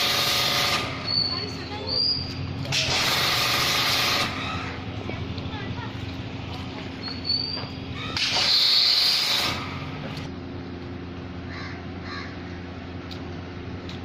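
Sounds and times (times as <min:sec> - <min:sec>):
steady low hum: 0:00.0 - 0:14.0
crow cawing: 0:11.5 - 0:12.6.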